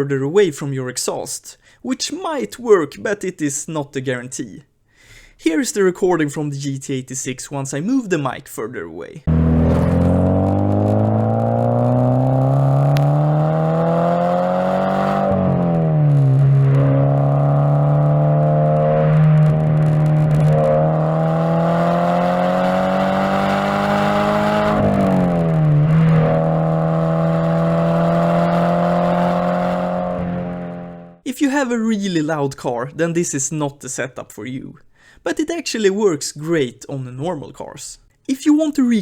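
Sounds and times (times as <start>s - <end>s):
car engine accelerating hard: 9.3s - 31.2s.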